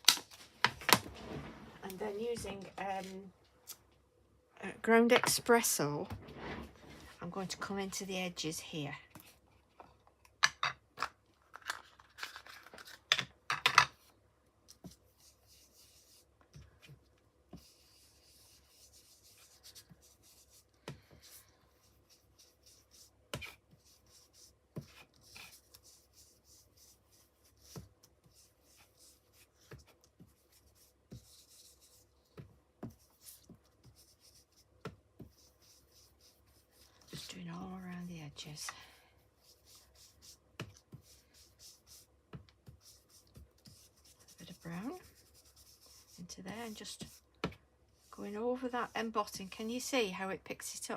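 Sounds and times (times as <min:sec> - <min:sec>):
rubbing and dabbing on card: 0:02.0 - 0:03.3, 0:14.7 - 0:49.9.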